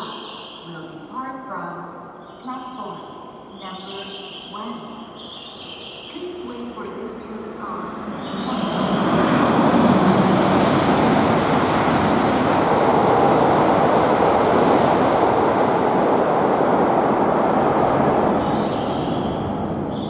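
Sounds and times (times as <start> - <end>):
high-speed train passing: 0.0 - 1.1, 1.9 - 20.0.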